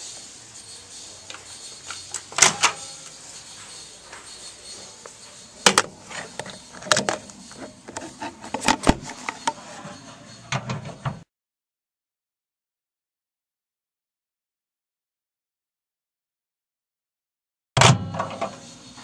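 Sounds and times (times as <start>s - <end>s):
faint steady background noise: 0.0s - 11.3s.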